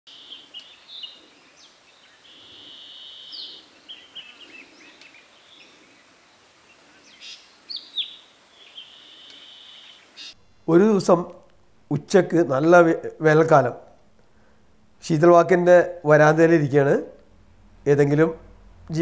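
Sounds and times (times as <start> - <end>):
forest birds calling: 0.1 - 10.4.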